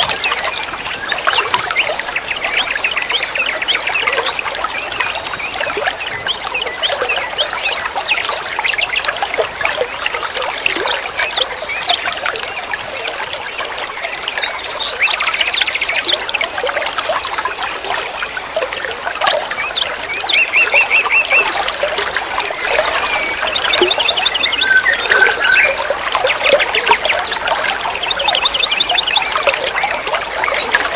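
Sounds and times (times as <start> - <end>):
songbirds chattering: 19.4 - 30.9.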